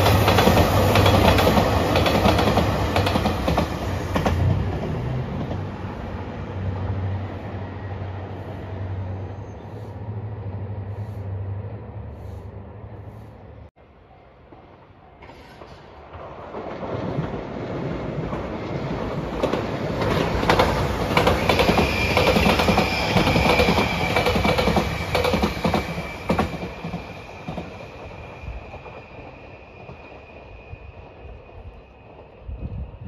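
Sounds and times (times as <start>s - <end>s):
train wheels clattering over rail joints: 18.3s - 27.8s.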